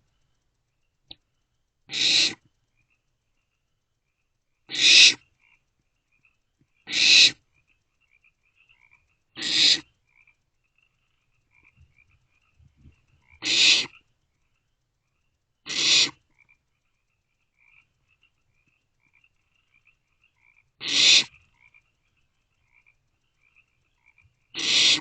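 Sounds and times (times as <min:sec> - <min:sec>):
faint high chittering: 0:00.0 - 0:25.0
owlets hissing calls: 0:01.9 - 0:02.4, 0:04.7 - 0:05.2, 0:06.9 - 0:07.4, 0:09.4 - 0:09.9, 0:13.4 - 0:13.9, 0:15.7 - 0:16.2, 0:20.8 - 0:21.4, 0:24.6 - 0:25.0.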